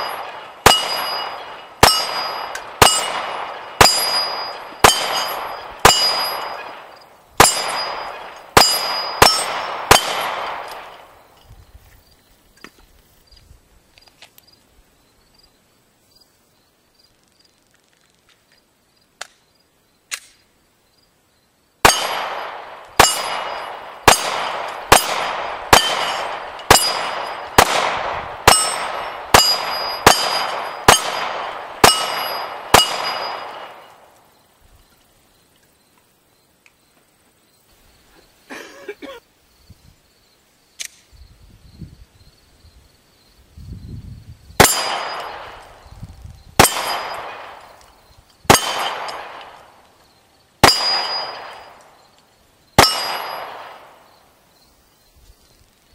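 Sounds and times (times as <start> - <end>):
steel target clanging: 0.0 - 11.1, 23.0 - 27.7, 28.4 - 33.9, 50.6 - 51.8, 52.8 - 53.6
pistol shots: 0.0 - 11.3, 21.8 - 34.1, 44.6 - 45.8, 46.6 - 49.8, 50.6 - 52.0, 52.8 - 54.2.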